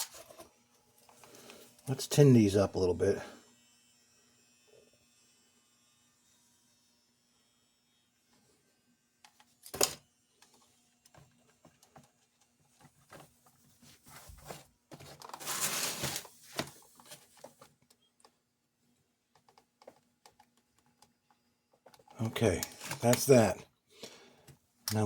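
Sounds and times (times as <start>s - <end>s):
clicks and taps of handling wires: 19.3s - 23.3s.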